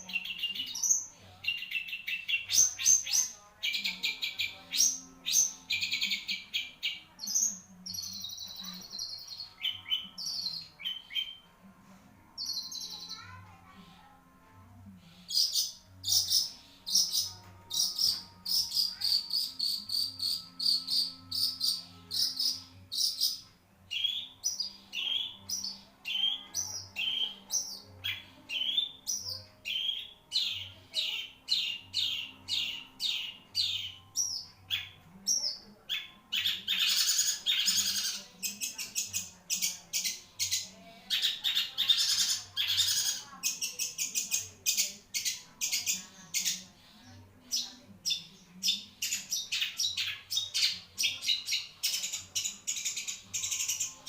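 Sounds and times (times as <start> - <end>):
bird harsh scratchy chatter: 36.4 - 39.8, 40.5 - 44.5.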